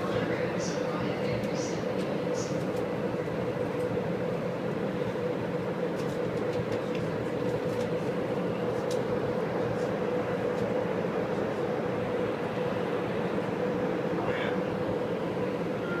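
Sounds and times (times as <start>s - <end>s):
monorail car hum and rumble: 0.0s - 16.0s
constant mid-pitched tone: 8.0s - 16.0s.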